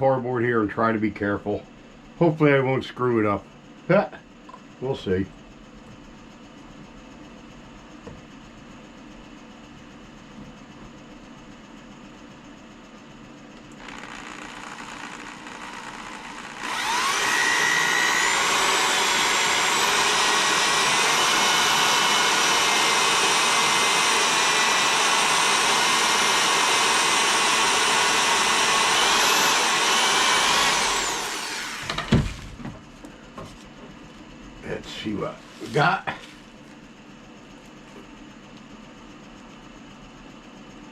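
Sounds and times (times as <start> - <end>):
electric drill whine: 13.6 - 32.6.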